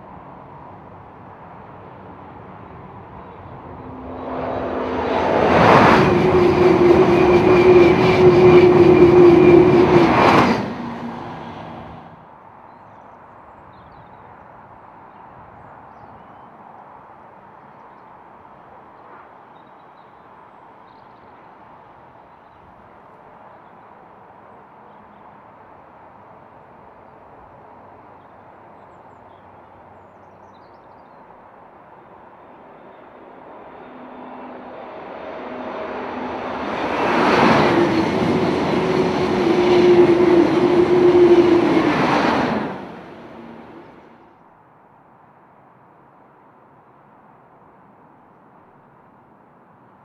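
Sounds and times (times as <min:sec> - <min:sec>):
high-speed electric train passing: 0:00.0 - 0:12.3, 0:31.5 - 0:44.3.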